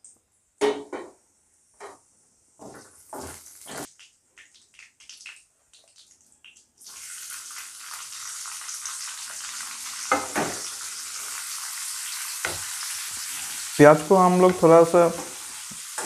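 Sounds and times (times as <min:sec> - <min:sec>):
onion sizzling in oil: 0:02.6 - 0:04.0, 0:06.8 - 0:16.0
spices crackling in hot oil: 0:02.6 - 0:16.0.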